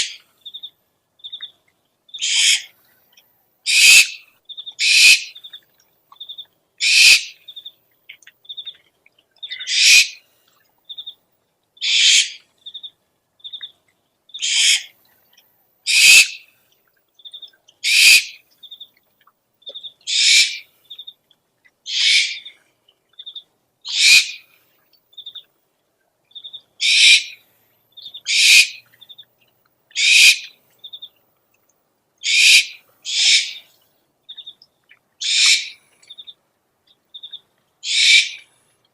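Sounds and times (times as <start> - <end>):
owl rasping call: 2.2 - 2.7, 3.7 - 4.2, 4.8 - 5.4, 6.8 - 7.4, 9.5 - 10.2, 11.8 - 12.4, 14.4 - 14.9, 15.9 - 16.4, 17.8 - 18.4, 20.1 - 20.7, 21.9 - 22.5, 23.9 - 24.4, 26.8 - 27.4, 28.1 - 28.8, 29.9 - 30.6, 32.2 - 33.7, 35.2 - 35.8, 37.8 - 38.5.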